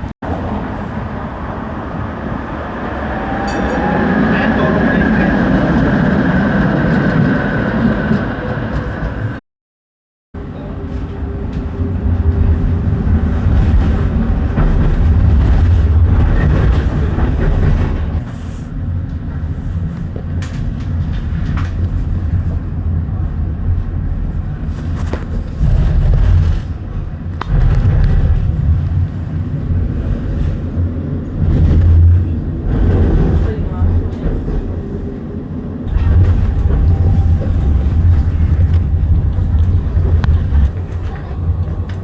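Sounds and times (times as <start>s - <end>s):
tram rumbling on rails: 0.0s - 9.4s, 10.4s - 42.0s.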